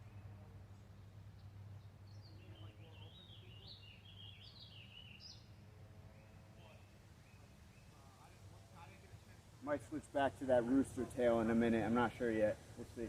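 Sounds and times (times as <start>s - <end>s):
songbird warbling: 2.1s - 5.5s.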